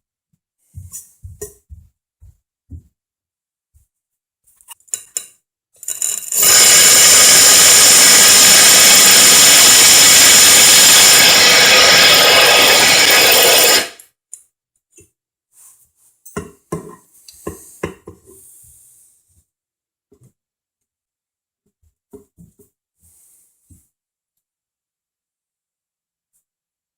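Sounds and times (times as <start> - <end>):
drill grinding into tile: 5.8 - 14.0.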